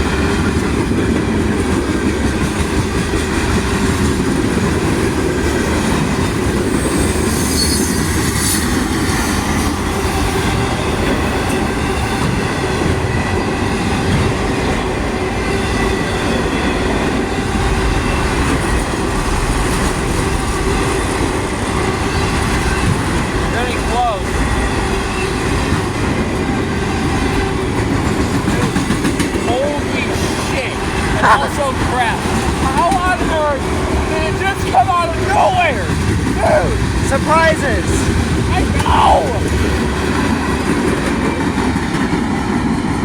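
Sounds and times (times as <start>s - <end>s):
train wheels rumbling on rails: 0.0s - 43.0s
high-pitched wheel squeal: 6.8s - 8.9s.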